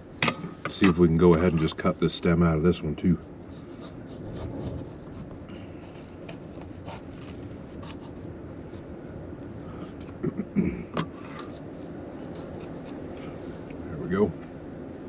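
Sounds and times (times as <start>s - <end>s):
knife scraping and cutting: 3.4s - 8.9s, 11.1s - 13.4s
steady low rush: 11.5s - 15.0s.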